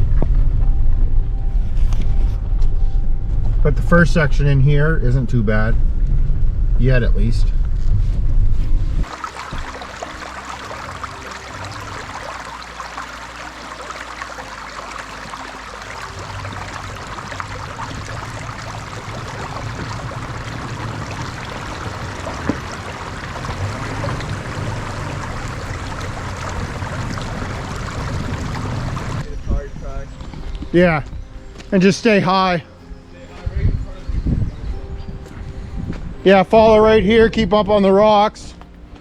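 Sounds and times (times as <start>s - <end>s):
low engine hum: 0.0s - 31.8s
tyres on wet ground: 9.0s - 29.3s.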